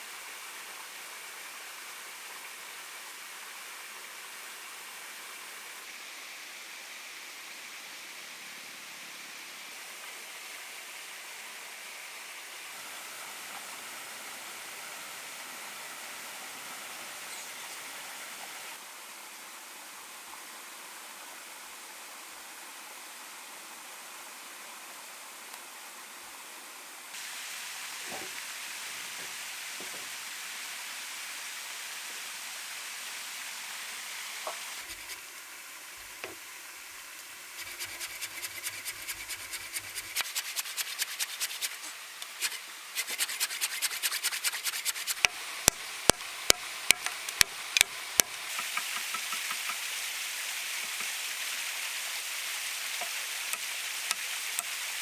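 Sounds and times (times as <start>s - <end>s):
steady hiss: 0.0s - 55.0s
rhythmic scraping strokes: 37.6s - 49.8s.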